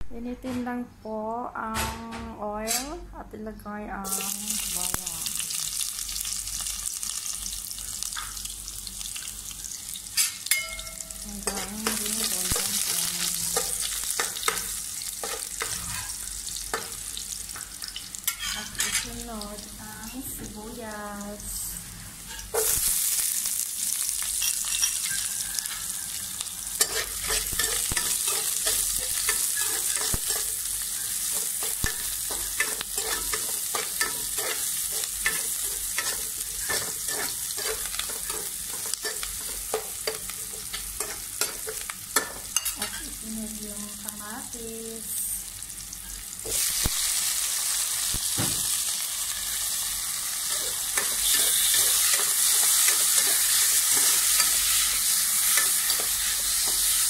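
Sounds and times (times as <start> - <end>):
onion sizzling in hot oil: 4.0 - 57.0
spatula scraping a pan: 18.2 - 19.0, 24.8 - 43.0, 50.5 - 57.0.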